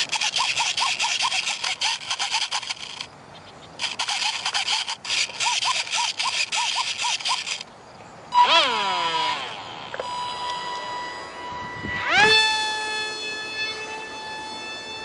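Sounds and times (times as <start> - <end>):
rhythmic scraping strokes: 0.0 - 3.1, 3.8 - 7.7.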